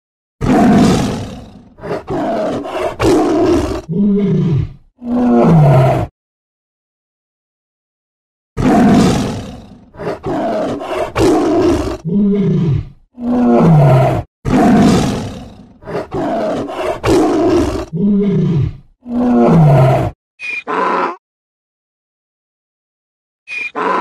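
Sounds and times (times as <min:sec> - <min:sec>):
tiger grunting calls: 0:00.4 - 0:06.0, 0:08.6 - 0:21.2
tiger roaring: 0:00.4 - 0:06.1, 0:08.6 - 0:21.2.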